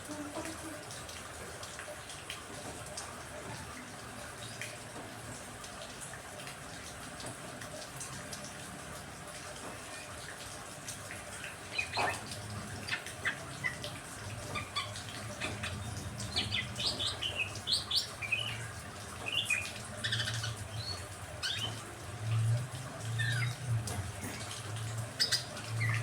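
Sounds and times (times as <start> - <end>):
rain hiss: 6.7 - 26.0
songbirds chirping: 11.4 - 26.0.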